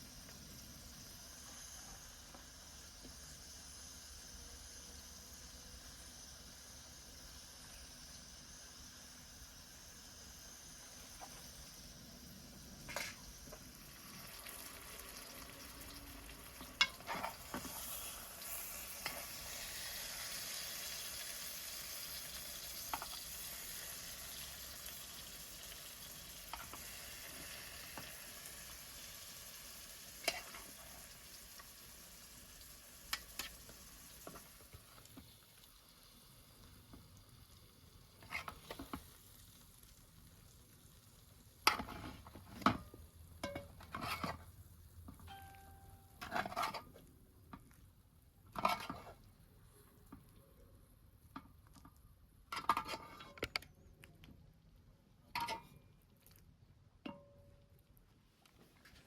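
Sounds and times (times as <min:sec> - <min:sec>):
omelette sizzling in a pan: 0:00.0 - 0:45.2, 0:48.5 - 0:50.2.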